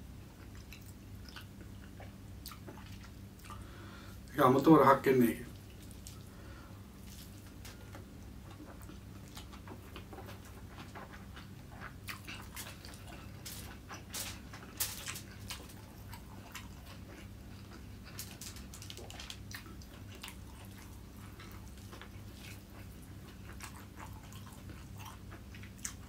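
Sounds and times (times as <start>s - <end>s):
faint low hum: 0.0s - 26.0s
man chewing: 0.2s - 4.3s, 5.5s - 26.0s.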